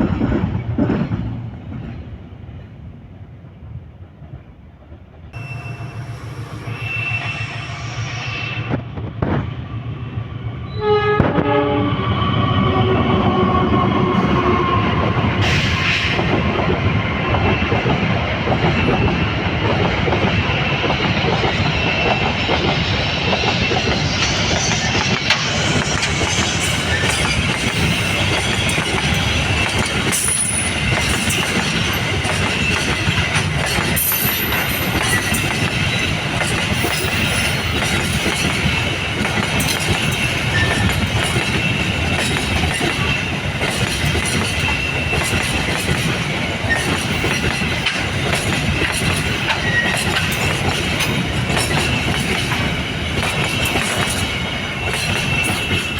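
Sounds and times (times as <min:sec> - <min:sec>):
train wheels clickety-clack: 0:00.0 - 0:02.1, 0:13.8 - 0:55.9
faint high wheel squeals: 0:05.4 - 0:08.7.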